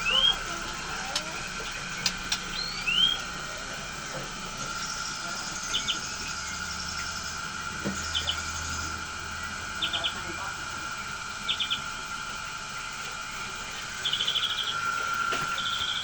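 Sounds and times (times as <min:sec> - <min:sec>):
bird chirps: 0:00.0 - 0:00.4, 0:02.4 - 0:03.3, 0:04.8 - 0:07.4, 0:08.0 - 0:10.2, 0:11.4 - 0:11.9, 0:13.9 - 0:16.0
bird rising whistle: 0:00.0 - 0:00.5, 0:02.0 - 0:03.4, 0:04.5 - 0:10.2, 0:11.1 - 0:12.2, 0:13.7 - 0:16.0
steady high drone: 0:00.0 - 0:16.0.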